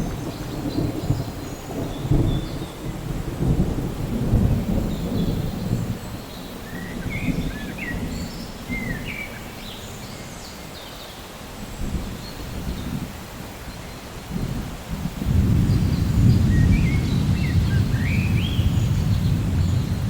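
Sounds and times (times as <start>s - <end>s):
rolling thunder: 0.0s - 9.1s, 14.3s - 20.0s
steady rain: 0.0s - 20.0s.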